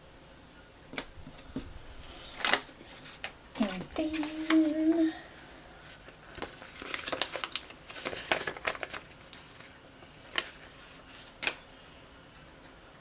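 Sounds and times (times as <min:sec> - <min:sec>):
paper crinkling: 0:01.0 - 0:11.6.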